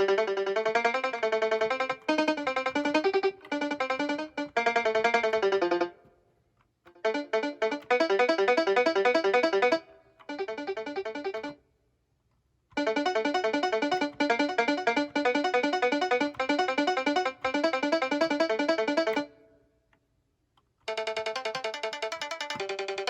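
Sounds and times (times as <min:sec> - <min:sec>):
bright synth notes: 0:00.0 - 0:06.0, 0:07.0 - 0:11.6, 0:12.8 - 0:19.3.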